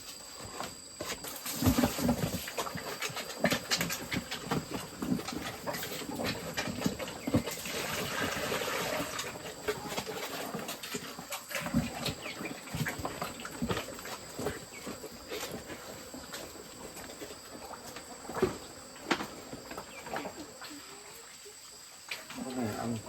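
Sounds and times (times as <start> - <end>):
piglets chomping while feeding: 1.2 - 18.5.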